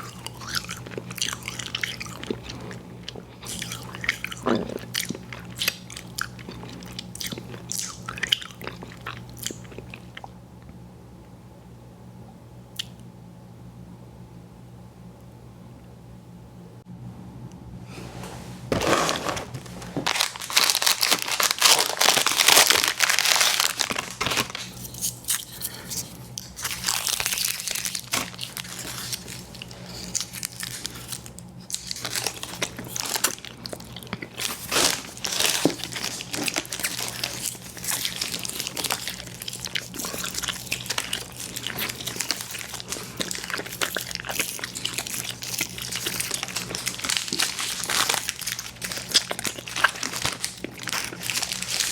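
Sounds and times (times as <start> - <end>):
chewing sticky candy: 0.0 - 10.7, 20.1 - 51.9
wrapper crinkling: 18.7 - 51.9.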